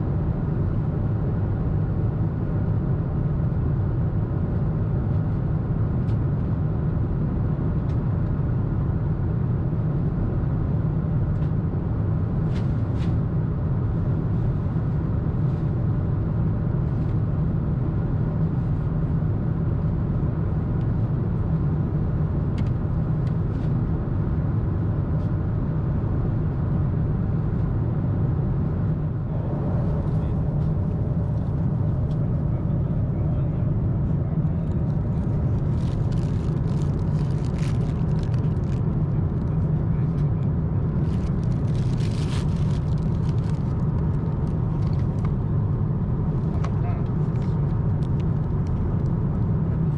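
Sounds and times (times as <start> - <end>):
airliner cabin rumble: 0.0 - 49.9.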